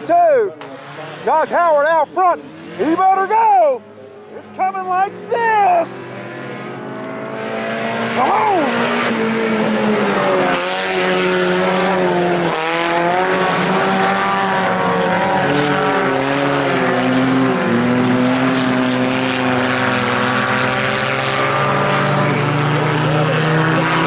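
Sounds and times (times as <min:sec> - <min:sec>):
race car engines accelerating: 0:00.0 - 0:24.0.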